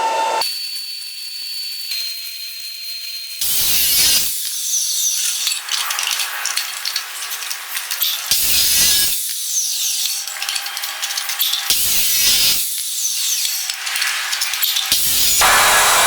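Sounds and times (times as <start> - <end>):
power tool grinding: 8.3 - 16.0.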